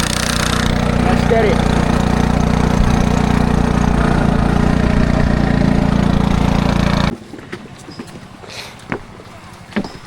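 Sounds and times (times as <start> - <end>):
engine running steadily: 0.0 - 7.2.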